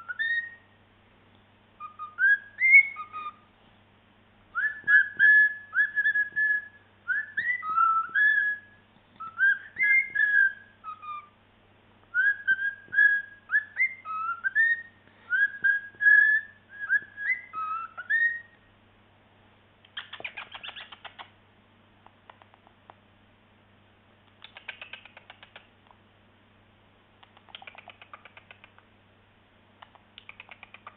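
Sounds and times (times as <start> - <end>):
cockatiel whistling and chattering: 0.0 - 0.6, 1.8 - 3.5, 4.5 - 11.4, 12.1 - 18.6, 19.9 - 21.3, 24.4 - 25.6, 27.3 - 28.7, 29.8 - 30.9.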